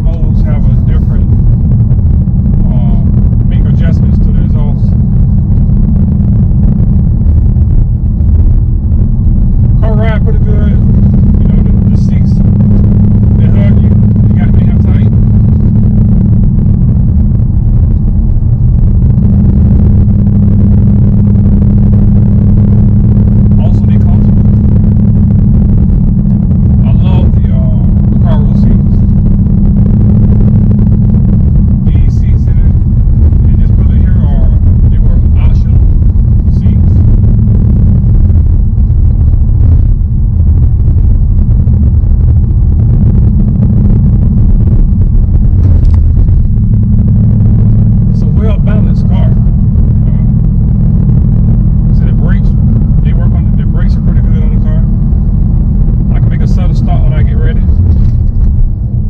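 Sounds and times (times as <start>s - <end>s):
car engine rumbling while driving: 0.0s - 59.0s.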